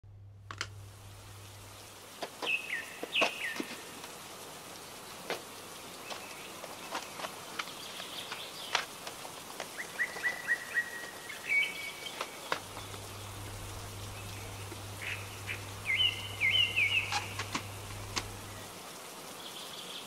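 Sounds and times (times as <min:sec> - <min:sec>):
small bird chirping: 0:09.7 - 0:18.7.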